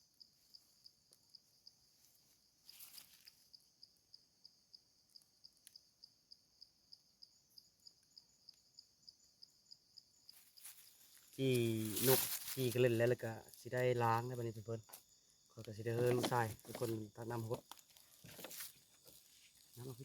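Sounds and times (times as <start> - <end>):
insect chirping: 0.0 - 20.0
soft rustle: 2.0 - 3.4, 10.3 - 12.9, 15.9 - 20.0.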